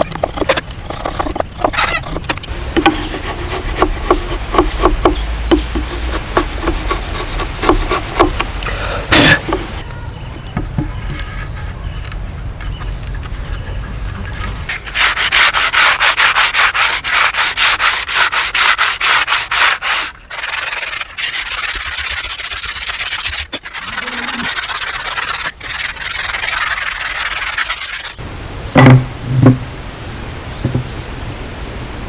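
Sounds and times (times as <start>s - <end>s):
metal part rubbed down by hand: 14.3s - 28.2s.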